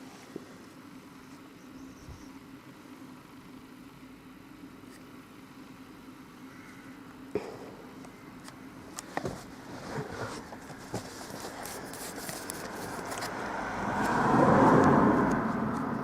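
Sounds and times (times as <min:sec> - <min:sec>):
road vehicle passing: 0:09.4 - 0:16.0.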